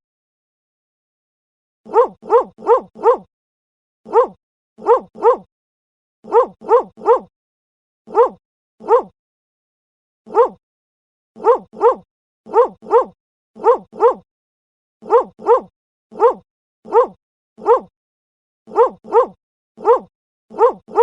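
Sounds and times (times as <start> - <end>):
dog barking: 1.9 - 3.3, 4.1 - 5.5, 6.2 - 7.3, 8.1 - 9.1, 10.3 - 10.6, 11.4 - 14.3, 15.0 - 17.9, 18.7 - 21.0.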